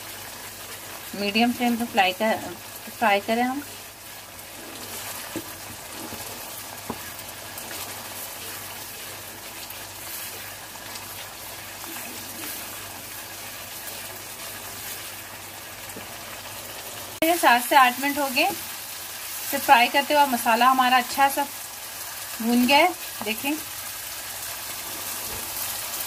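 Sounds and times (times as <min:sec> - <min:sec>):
masala sizzling in oil: 0:00.0 - 0:26.0.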